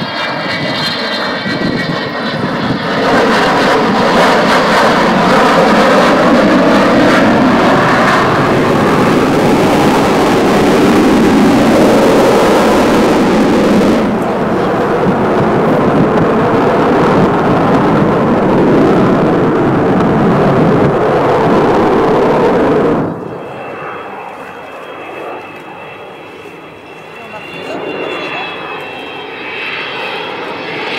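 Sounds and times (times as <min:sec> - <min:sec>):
jet aircraft flying overhead: 0:00.0 - 0:30.9.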